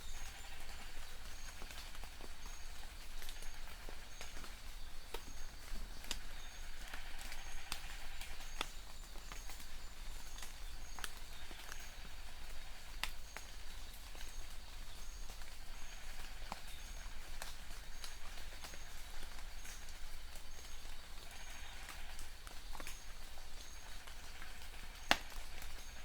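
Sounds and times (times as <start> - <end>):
large raindrops tapping: 20.8 - 26.0.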